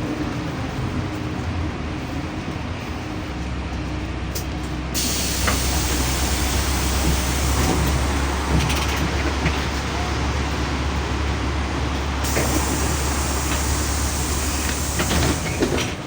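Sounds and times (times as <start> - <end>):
bus engine humming: 0.0 - 16.0.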